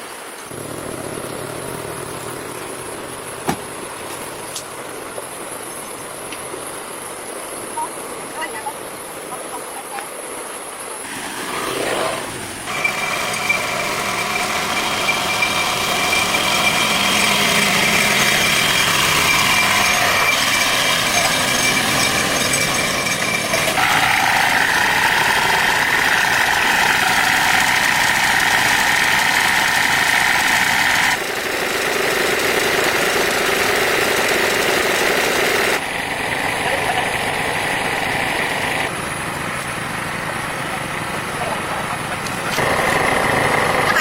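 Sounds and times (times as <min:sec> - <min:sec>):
machine running with high whine: 0:11.4 - 0:44.0.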